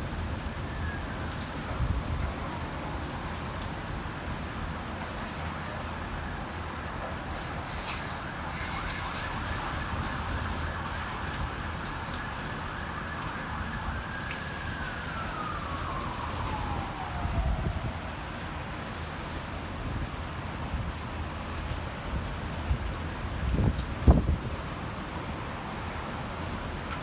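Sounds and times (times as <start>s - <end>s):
siren: 0.0s - 20.1s
rushing wind: 0.0s - 25.1s
wind buffeting microphone: 15.1s - 18.1s, 22.2s - 24.6s.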